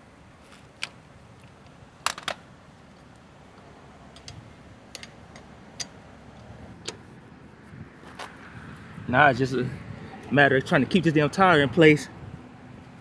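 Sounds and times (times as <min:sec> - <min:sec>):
metal clicks and clinks: 0:04.2 - 0:06.0.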